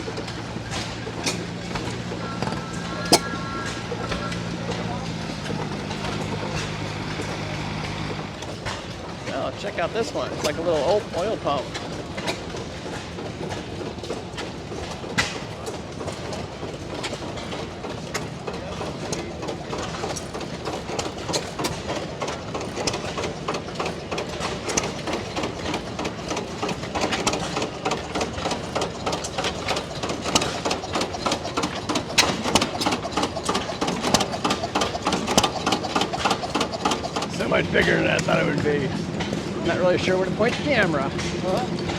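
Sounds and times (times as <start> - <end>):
gas engines popping and clacking: 0.0 - 41.9.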